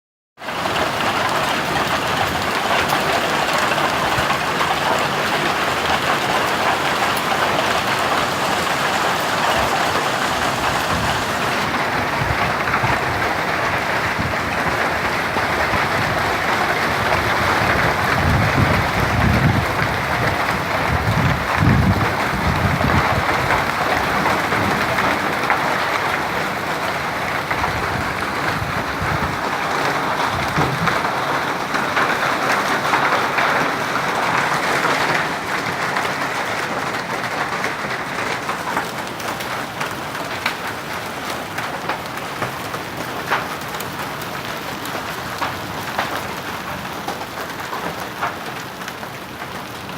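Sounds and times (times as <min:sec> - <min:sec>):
hail and rain pelting: 0:00.4 - 0:49.9
low rumbling: 0:07.0 - 0:31.7.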